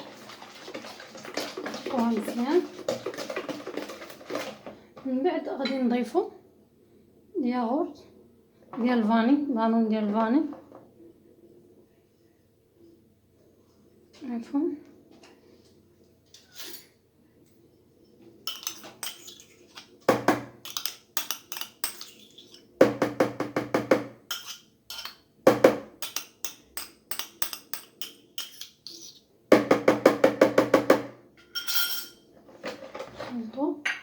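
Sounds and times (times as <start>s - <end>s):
utensil beating batter in bowl: 0.0s - 4.8s, 18.5s - 31.1s.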